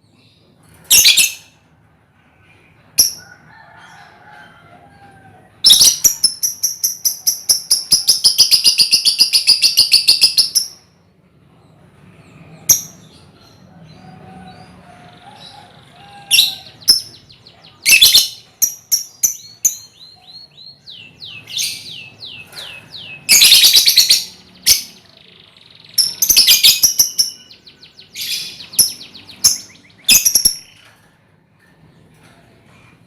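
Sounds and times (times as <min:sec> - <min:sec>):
lovebirds chirping: 0:15.2 - 0:30.9.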